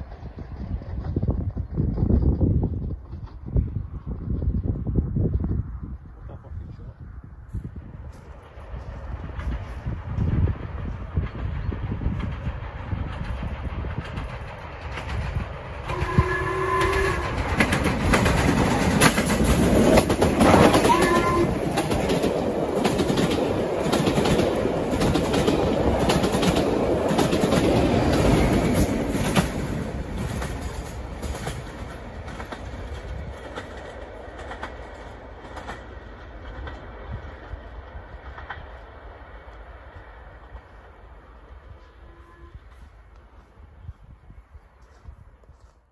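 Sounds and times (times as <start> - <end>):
train wheels clattering: 8.2 - 41.0
train horn: 15.9 - 17.7, 20.4 - 21.7, 41.7 - 43.0.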